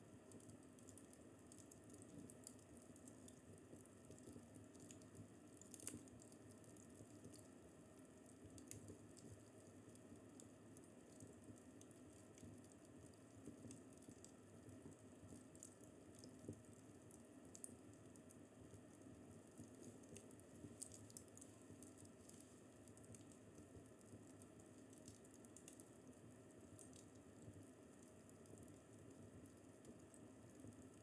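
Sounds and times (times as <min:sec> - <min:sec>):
wood fire crackling: 0:00.1 - 0:31.0.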